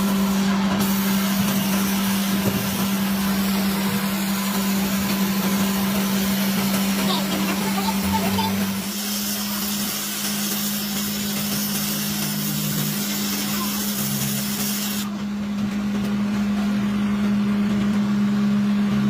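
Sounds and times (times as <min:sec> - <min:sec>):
machine hiss: 0:00.0 - 0:15.2
workshop machine humming: 0:00.0 - 0:19.0.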